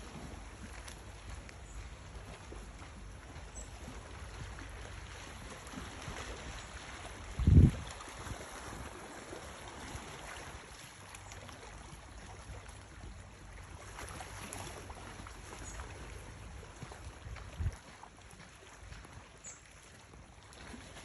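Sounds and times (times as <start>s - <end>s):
water lapping: 0.0s - 21.0s
wind: 0.0s - 21.0s
wind buffeting microphone: 6.0s - 8.9s, 16.8s - 18.0s.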